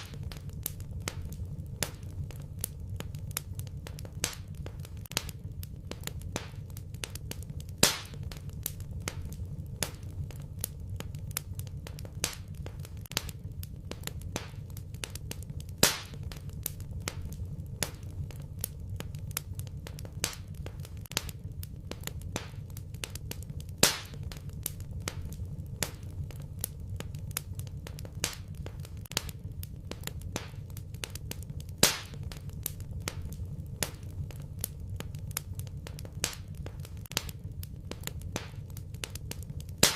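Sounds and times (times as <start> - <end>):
fireplace fire crackling: 0.0 - 39.9
loud fire pop: 7.8 - 8.2, 15.8 - 16.4, 23.8 - 24.2, 31.8 - 34.1.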